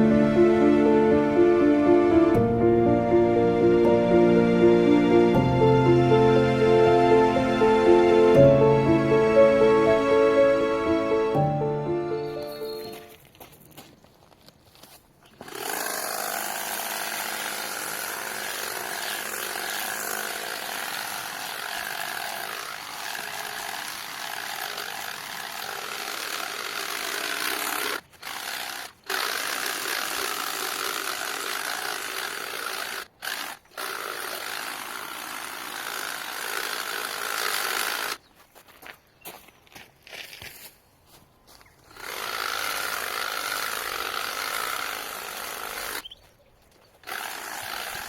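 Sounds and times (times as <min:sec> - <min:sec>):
hedge trimmer cutting: 0:15.3 - 0:38.2, 0:41.9 - 0:46.1, 0:47.0 - 0:48.0.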